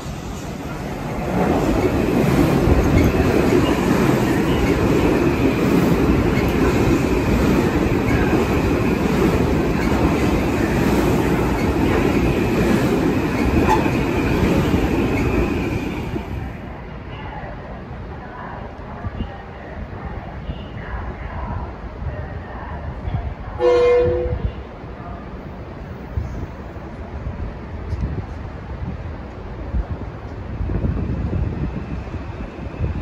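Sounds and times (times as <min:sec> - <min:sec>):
train wheels rumbling on rails: 0:00.0 - 0:17.1.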